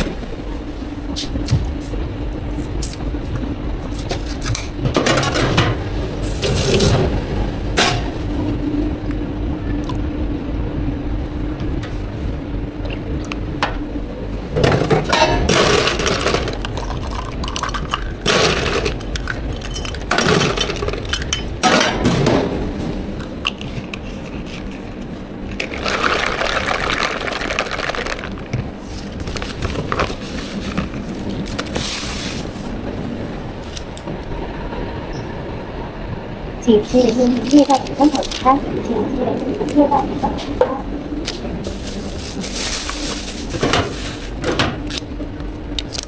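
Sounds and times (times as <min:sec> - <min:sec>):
liquid pouring: 0:16.6 - 0:18.2, 0:25.6 - 0:28.5.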